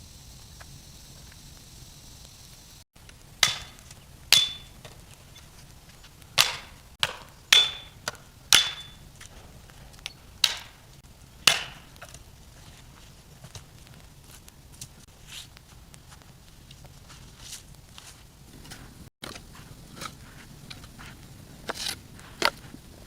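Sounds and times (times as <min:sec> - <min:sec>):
metal tool blows with ring: 0:03.4 - 0:04.8, 0:07.5 - 0:09.1.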